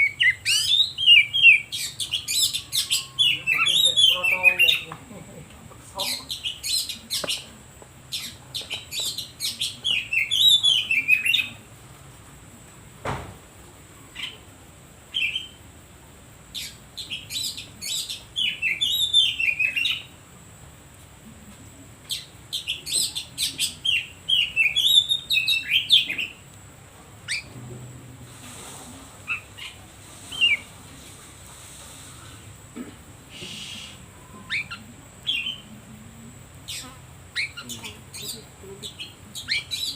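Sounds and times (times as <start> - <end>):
bird singing whistles and chirps: 0.0 - 4.8, 9.0 - 11.6, 16.6 - 20.1, 22.1 - 26.4, 27.3 - 27.5, 29.3 - 30.7, 33.3 - 35.6, 36.7 - 38.4.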